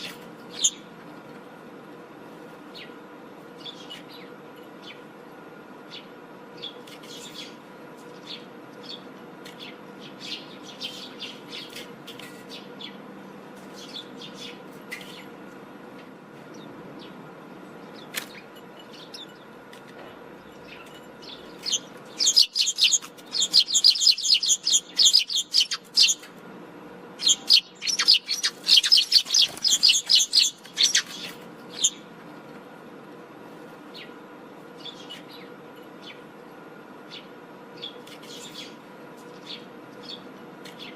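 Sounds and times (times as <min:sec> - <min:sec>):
birds chirping: 0:00.0 - 0:00.9, 0:02.7 - 0:05.1, 0:05.8 - 0:15.4, 0:16.4 - 0:26.3, 0:27.1 - 0:32.1, 0:34.8 - 0:40.9
loud chattering bird calls: 0:00.0 - 0:00.9, 0:20.5 - 0:26.2, 0:27.2 - 0:32.0
faint steady hum: 0:00.0 - 0:40.9.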